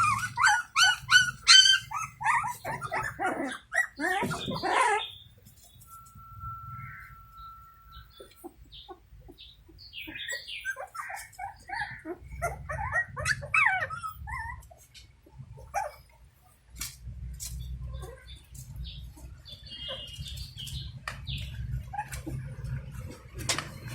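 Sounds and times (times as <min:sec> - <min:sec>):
puppies whimpering and squealing: 0:00.0 - 0:06.0, 0:06.6 - 0:16.6, 0:17.8 - 0:23.9.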